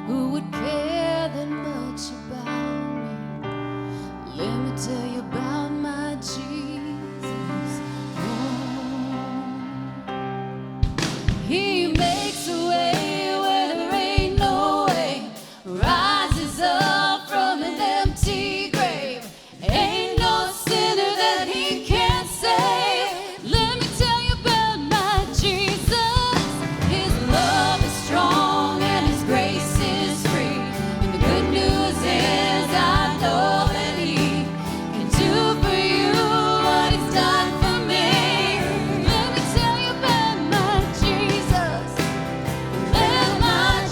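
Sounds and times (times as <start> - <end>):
lead vocalist singing: 4.2 - 10.5, 11.4 - 43.9
worship band music: 4.2 - 43.9
drums: 6.9 - 43.9.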